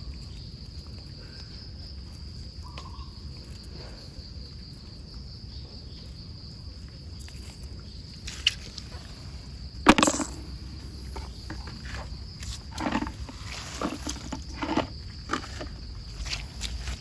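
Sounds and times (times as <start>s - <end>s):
high-pitched insect trill: 0.0s - 17.0s
rustles: 7.0s - 17.0s.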